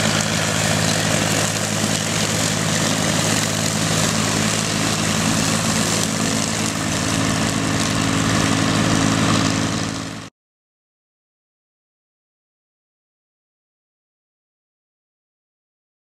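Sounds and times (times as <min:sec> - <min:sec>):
tractor engine running: 0:00.0 - 0:10.3.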